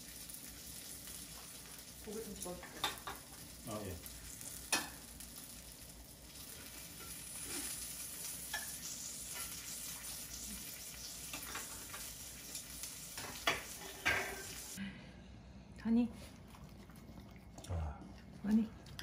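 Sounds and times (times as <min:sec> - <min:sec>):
food sizzling in a pot: 0:00.0 - 0:14.8.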